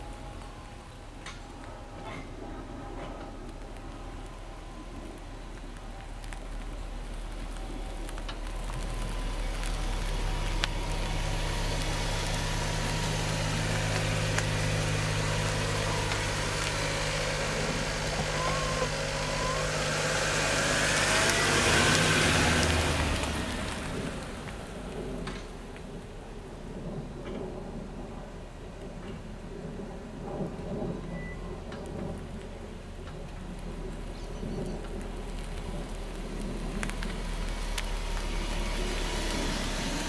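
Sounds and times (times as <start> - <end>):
car engine running: 6.3 - 25.8, 33.7 - 40.0
tyres and brakes rushing hiss: 8.5 - 24.8.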